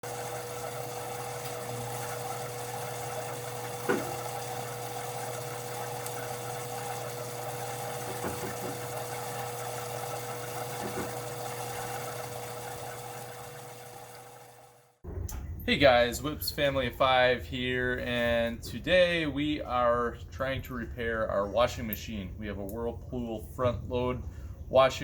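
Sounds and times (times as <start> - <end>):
motor knocking: 0.0 - 15.0
washing machine humming: 0.0 - 16.0.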